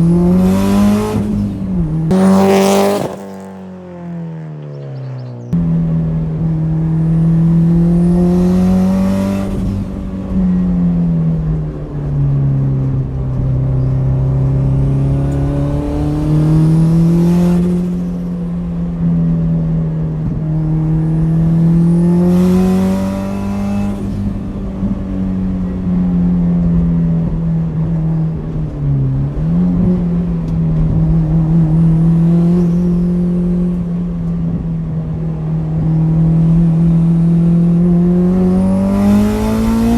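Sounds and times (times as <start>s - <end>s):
car engine revving: 0.0s - 11.9s, 12.6s - 19.0s, 20.2s - 27.8s, 28.5s - 39.9s.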